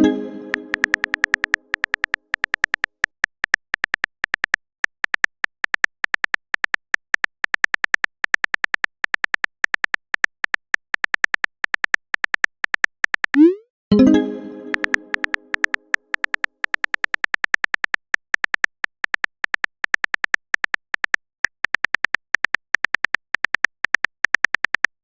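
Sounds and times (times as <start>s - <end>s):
keyboard typing clicks: 0.0s - 2.9s, 13.4s - 17.2s.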